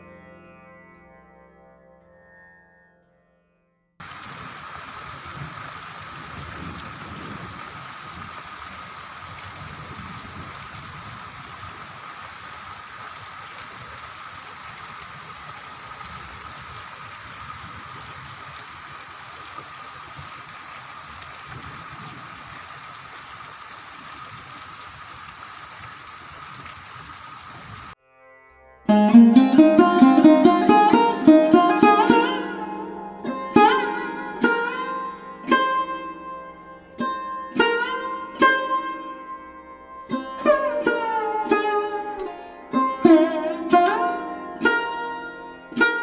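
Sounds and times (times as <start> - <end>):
heavy rain falling: 4.0 - 27.3.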